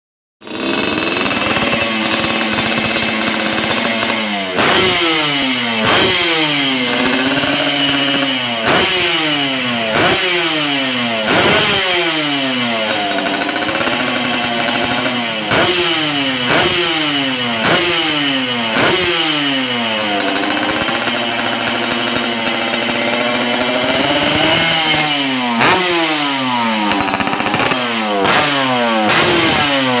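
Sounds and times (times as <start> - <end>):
two-stroke motorcycle engine revving: 0.4 - 30.0.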